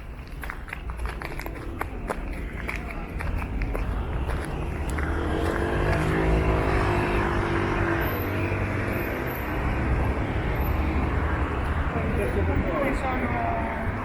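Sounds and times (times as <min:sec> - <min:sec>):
vehicle engine hum passing: 0:00.0 - 0:14.0.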